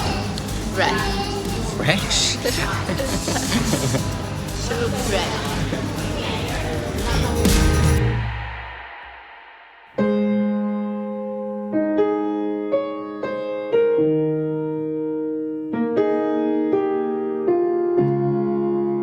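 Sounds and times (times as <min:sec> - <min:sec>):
electric piano slow chords: 0:10.0 - 0:19.0.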